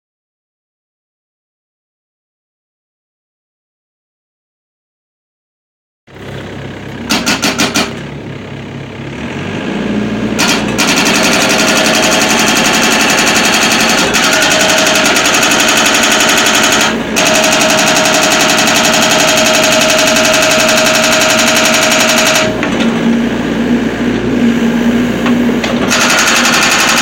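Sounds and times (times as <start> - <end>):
excavator engine running: 6.1 - 27.0
hydraulic breaker hammering: 7.1 - 8.1, 10.4 - 23.0, 25.2 - 27.0.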